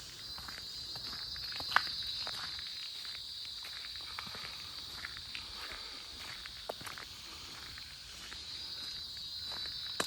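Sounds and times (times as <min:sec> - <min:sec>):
faint footsteps: 0:00.0 - 0:10.0
insects droning: 0:00.0 - 0:10.0.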